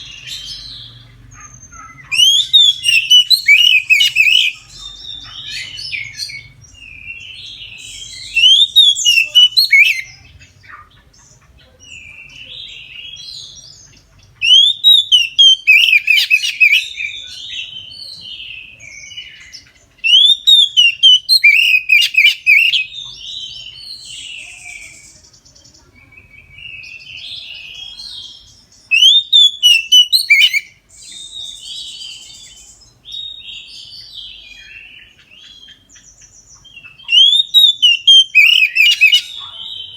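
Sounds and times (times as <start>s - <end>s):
bird song whistles and chatter: 0.0s - 39.9s
soft bird twittering: 0.0s - 39.9s.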